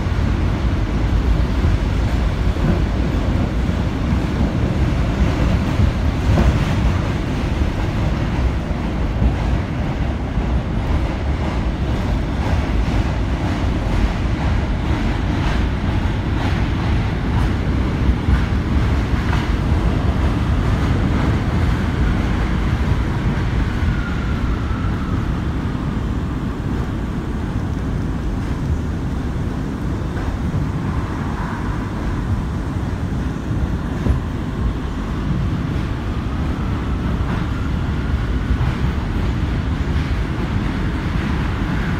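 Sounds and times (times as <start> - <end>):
rail clicks: 0.0 - 41.9
subway train wheels rumbling: 0.0 - 41.9.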